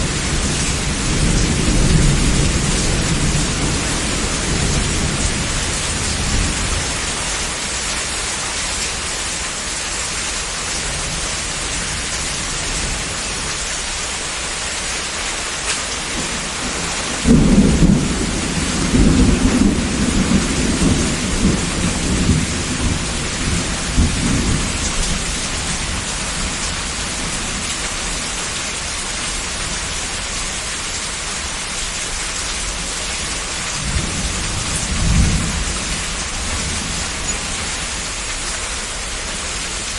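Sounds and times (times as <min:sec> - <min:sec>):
rolling thunder: 0:00.0 - 0:07.3, 0:16.0 - 0:27.7, 0:33.7 - 0:38.1
heavy rain: 0:00.0 - 0:39.9.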